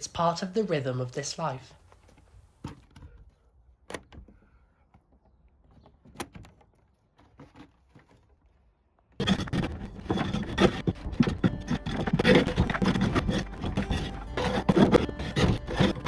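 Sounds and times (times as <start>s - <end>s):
scraping and rustling bedding: 9.2s - 16.0s.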